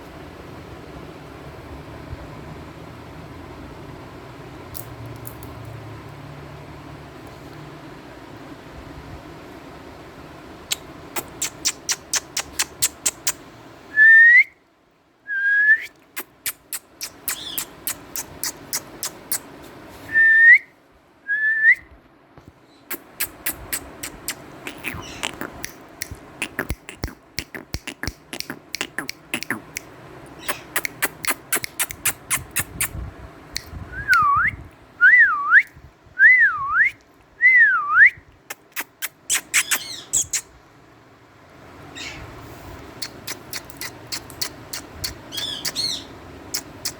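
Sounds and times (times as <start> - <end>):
parrot clicking: 10.7 - 13.4, 16.2 - 19.4, 22.9 - 32.9, 43.0 - 45.9
parrot whistling: 15.8 - 19.4, 38.8 - 40.5, 43.0 - 46.9.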